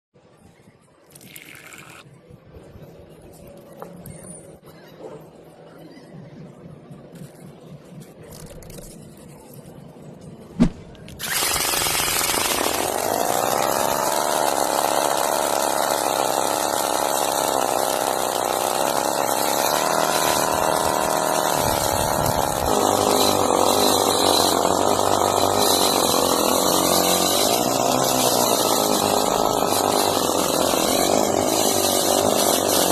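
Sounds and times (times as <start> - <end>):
small motor buzzing: 11.2 - 32.9.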